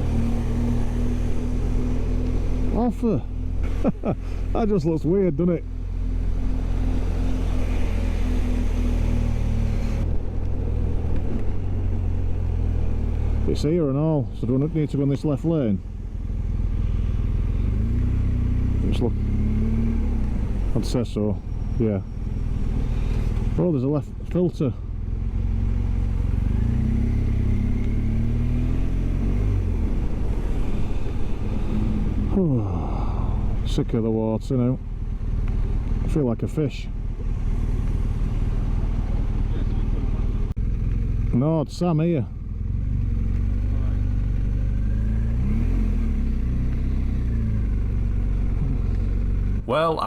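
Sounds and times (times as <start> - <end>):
road noise rushing: 0.0 - 13.7, 45.4 - 50.0.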